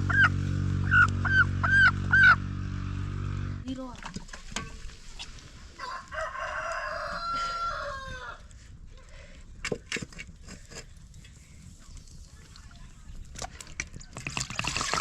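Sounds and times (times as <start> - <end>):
rooster crowing: 5.8 - 8.5.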